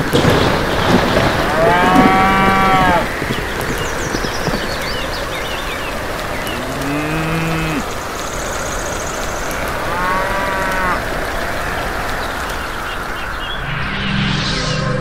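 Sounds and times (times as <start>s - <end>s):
steady rain: 0.0s - 13.7s
cattle mooing: 1.5s - 3.1s, 6.6s - 7.9s, 9.8s - 11.1s.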